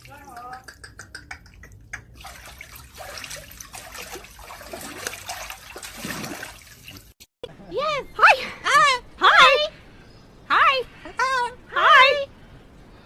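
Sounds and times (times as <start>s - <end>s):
light water splashing: 0.0s - 7.2s
water running and trickling: 0.0s - 7.2s.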